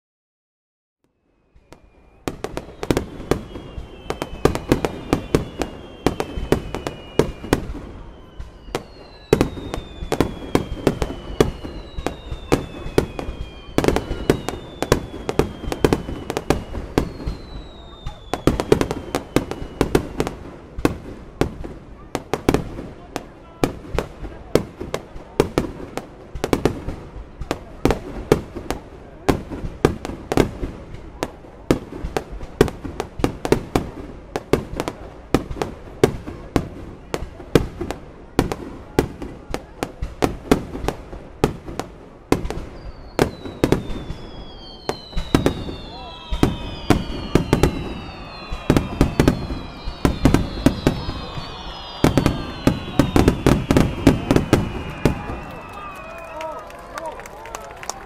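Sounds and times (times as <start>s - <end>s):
whistling fireworks: 1.1s - 58.0s
firework bursts and bangs: 1.5s - 58.0s.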